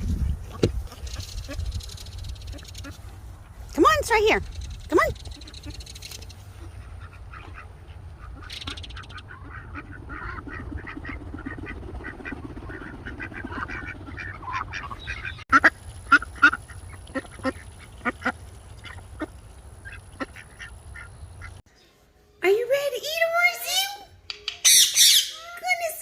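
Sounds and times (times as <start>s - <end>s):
parrots chirping and squeaking: 4.2s - 6.6s, 24.3s - 25.4s
parrots squawking: 24.6s - 25.5s.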